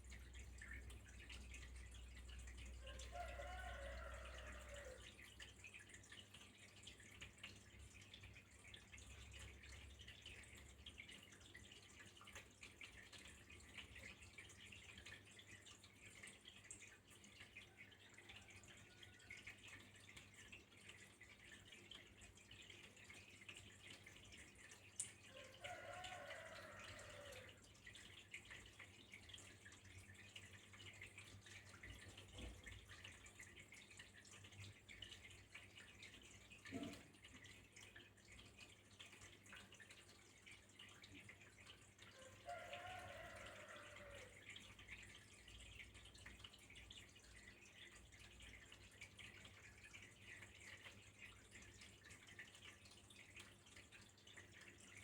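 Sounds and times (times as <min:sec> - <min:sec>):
water trickling and dripping: 0:00.0 - 0:55.0.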